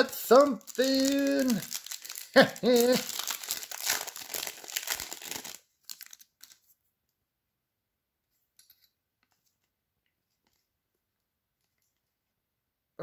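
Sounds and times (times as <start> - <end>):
foil pack tearing and crinkling: 0.3 - 6.6.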